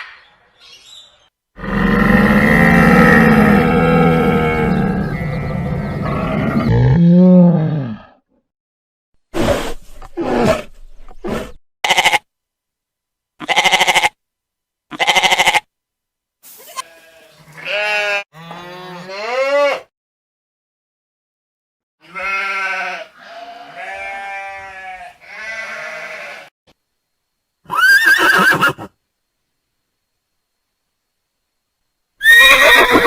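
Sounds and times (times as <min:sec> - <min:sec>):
livestock bleating: 0:11.8 - 0:12.3, 0:13.4 - 0:14.2, 0:14.9 - 0:15.7, 0:16.7 - 0:19.9, 0:22.0 - 0:26.5.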